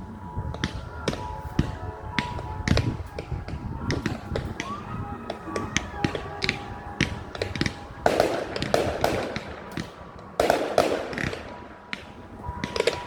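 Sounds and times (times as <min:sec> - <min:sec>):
fireworks banging: 0:00.0 - 0:13.0
fireworks crackling: 0:00.0 - 0:13.0.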